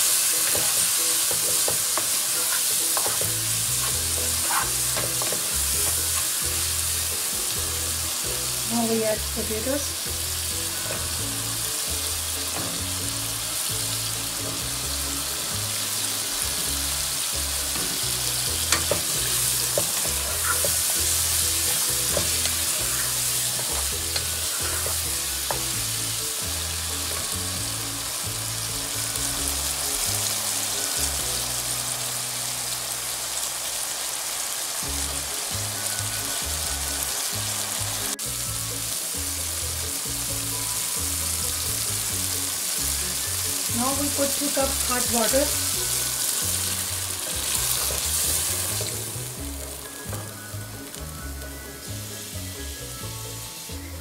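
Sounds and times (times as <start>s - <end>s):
potatoes sizzling in oil: 0.0s - 54.0s
wooden spatula scraping pan: 0.4s - 6.3s, 17.9s - 25.9s.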